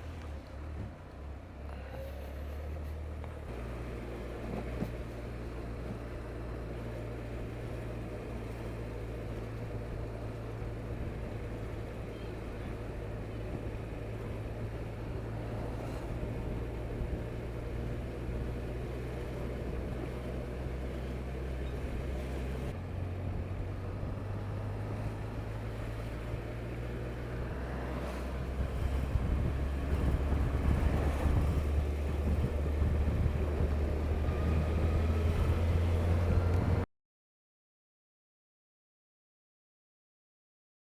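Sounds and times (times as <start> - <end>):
wind noise: 28.5 - 36.8.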